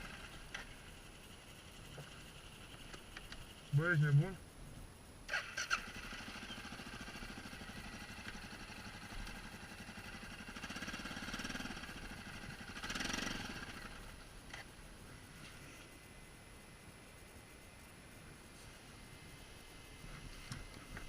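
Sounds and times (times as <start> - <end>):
atv engine idling: 0.0 - 4.3, 5.3 - 17.0.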